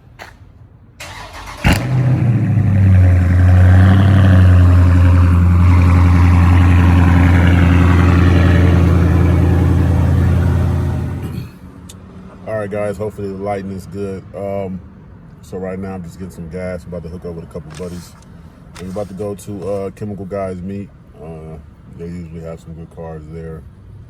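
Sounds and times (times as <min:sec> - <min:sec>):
car engine starting and idling: 0:01.0 - 0:11.6.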